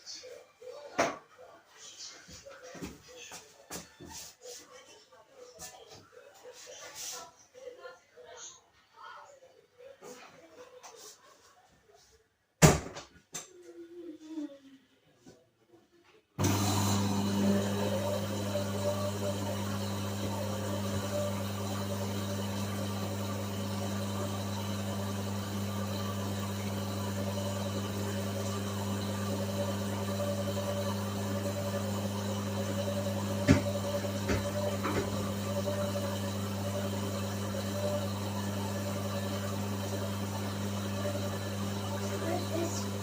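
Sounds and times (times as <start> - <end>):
washing machine motor hum: 16.4 - 43.0.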